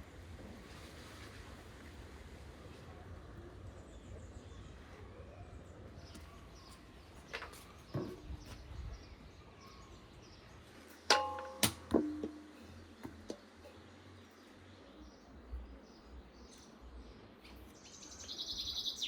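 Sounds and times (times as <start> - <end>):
sharp ringing clangs: 11.1 - 12.6.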